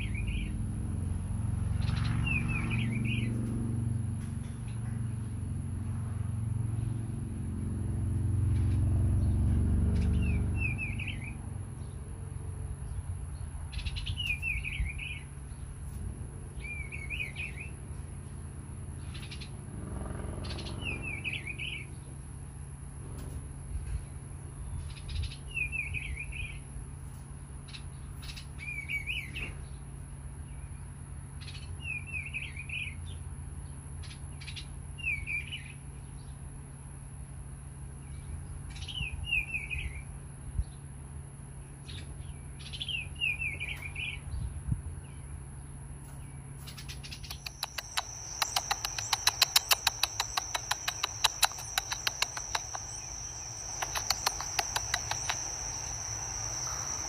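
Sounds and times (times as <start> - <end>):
small bird chirping: 46.1 - 57.0
insect chirring: 47.2 - 57.0.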